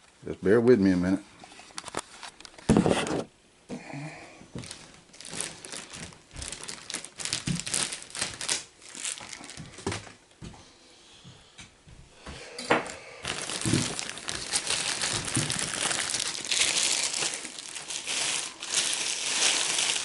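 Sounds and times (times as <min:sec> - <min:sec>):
packing material crumpling and tearing: 0:04.6 - 0:10.1, 0:13.2 - 0:20.0.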